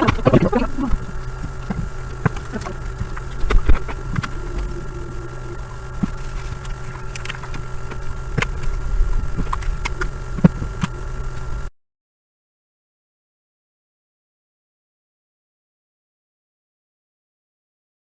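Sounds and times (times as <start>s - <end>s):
electrical hum: 0.0s - 11.7s.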